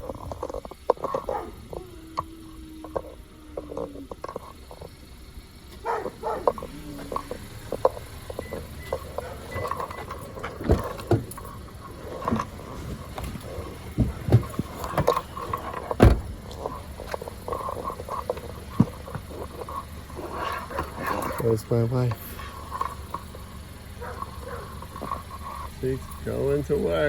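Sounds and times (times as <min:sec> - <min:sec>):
car road and engine rumble: 0:00.0 - 0:27.0
knocks and thumps: 0:05.8 - 0:21.4.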